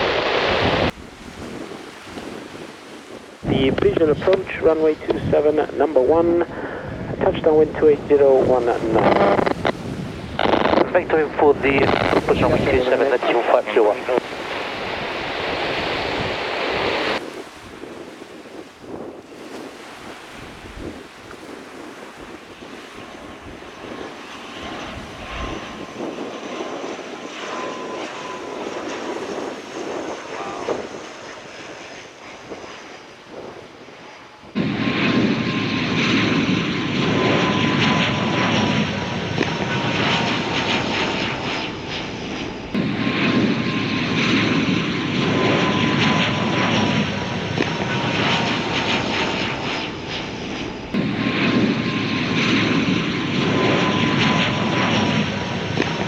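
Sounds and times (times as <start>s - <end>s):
propeller engines droning: 0.0s - 56.0s.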